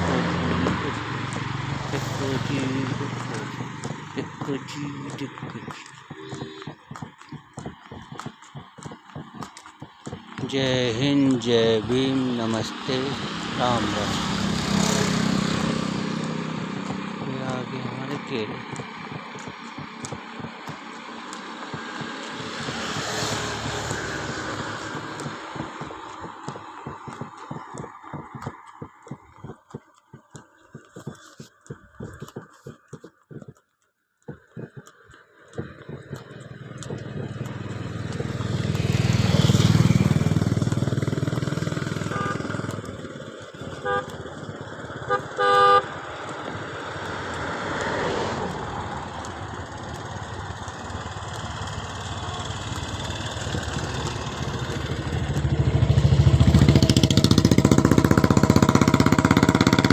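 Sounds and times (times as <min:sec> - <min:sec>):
vehicle engines passing: 0:00.0 - 0:06.7, 0:09.9 - 0:28.9, 0:35.5 - 0:59.9
horn tooting short blasts: 0:42.0 - 0:42.6, 0:43.8 - 0:44.2, 0:45.1 - 0:45.9.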